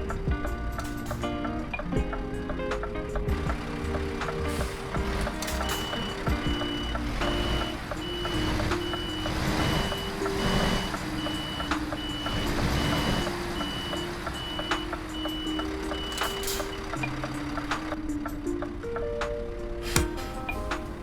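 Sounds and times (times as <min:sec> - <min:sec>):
truck engine running: 0:00.0 - 0:21.0
truck reversing alarm beeping: 0:03.4 - 0:18.1.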